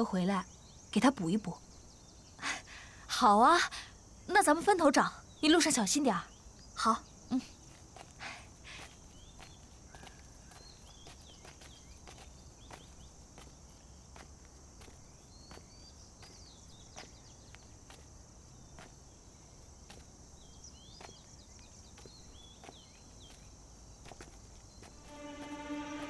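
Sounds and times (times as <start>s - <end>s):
high insect drone: 0.0s - 26.0s
footsteps on forest floor: 7.6s - 26.0s
music: 25.0s - 26.0s.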